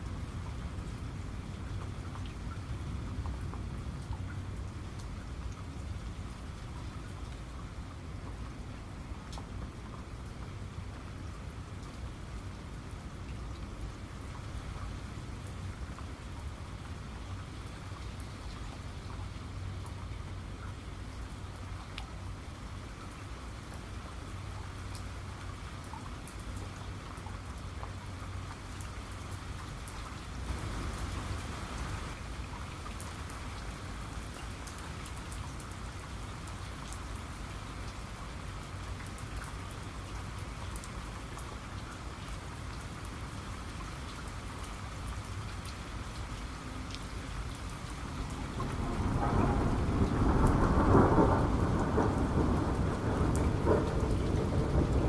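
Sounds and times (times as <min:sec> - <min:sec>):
steady rain falling: 0:00.0 - 0:55.0
raindrops ticking: 0:01.6 - 0:55.0
rolling thunder: 0:48.4 - 0:55.0.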